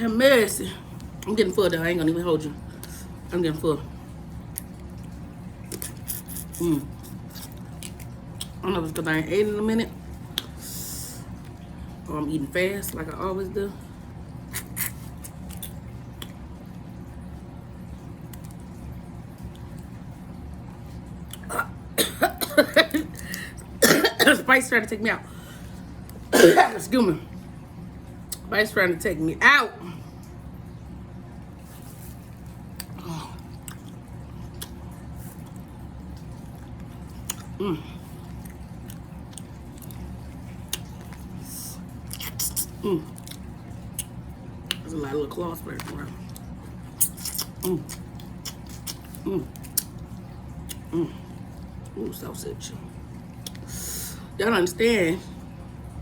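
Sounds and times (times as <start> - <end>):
steady low hum: 0.0 - 56.0
wet squishy chewing: 3.9 - 12.0, 14.0 - 23.8, 25.3 - 26.3, 28.2 - 28.5, 31.2 - 52.0, 52.9 - 53.8
person coughing: 21.4 - 24.5, 26.3 - 26.8.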